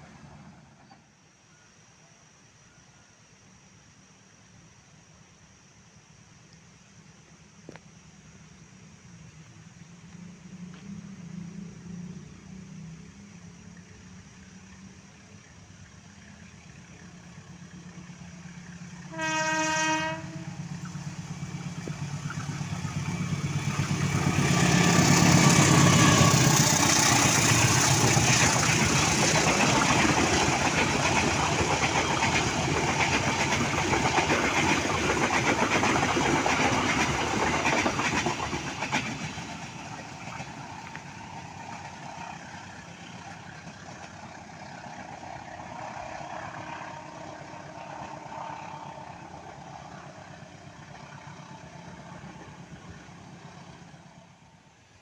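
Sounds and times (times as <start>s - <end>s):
diesel locomotive horn: 18.8s - 20.8s, 24.6s - 27.3s
train wheels clattering over rails: 20.6s - 46.6s.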